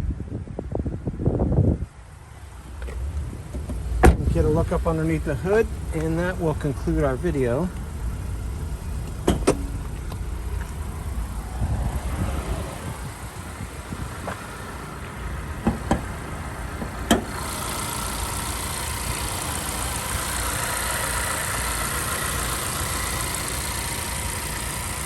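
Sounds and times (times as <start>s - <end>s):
car engine idling: 1.9s - 25.0s
car hood clicks: 2.8s - 4.6s, 8.6s - 10.9s, 15.6s - 17.4s.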